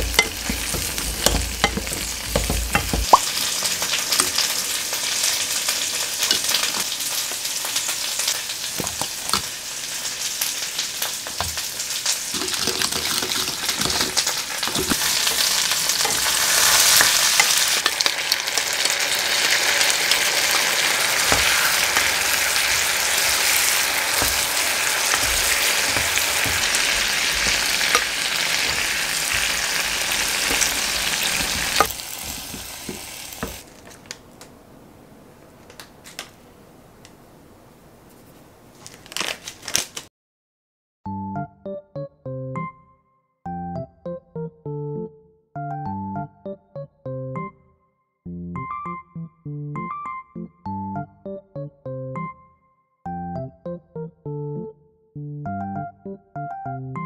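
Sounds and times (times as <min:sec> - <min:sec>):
wooden spatula stirring: 0:00.0 - 0:03.2, 0:21.1 - 0:34.0
food sizzling in a frying pan: 0:00.0 - 0:34.1.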